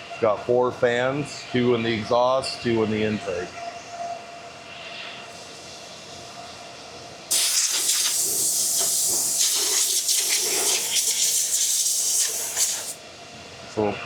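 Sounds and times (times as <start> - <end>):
compressed air hissing: 7.3 - 13.0.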